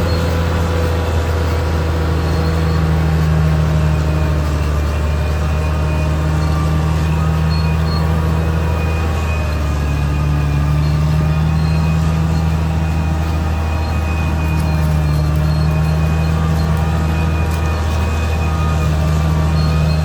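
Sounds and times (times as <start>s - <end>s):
bulldozer diesel engine running: 0.0s - 20.0s.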